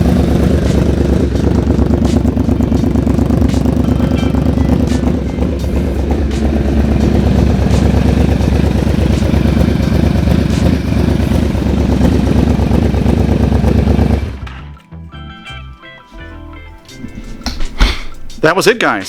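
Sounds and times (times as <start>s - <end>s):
motorcycle engine running: 0.0s - 14.6s.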